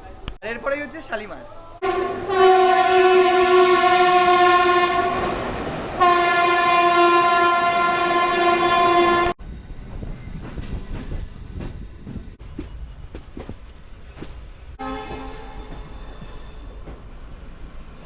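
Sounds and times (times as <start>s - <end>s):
train horn blasts: 1.8s - 9.4s, 14.8s - 15.9s
train rumbling on rails: 1.8s - 18.0s.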